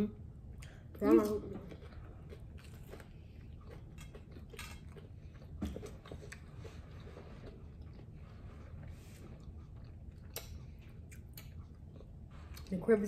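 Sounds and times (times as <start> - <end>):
people chewing tacos: 0.0 - 13.0
wet mouth clicks: 10.2 - 11.9.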